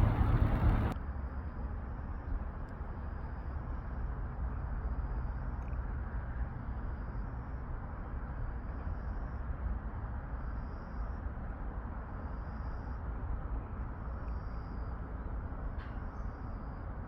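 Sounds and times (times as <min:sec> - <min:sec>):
steady low rumble: 0:00.0 - 0:01.0.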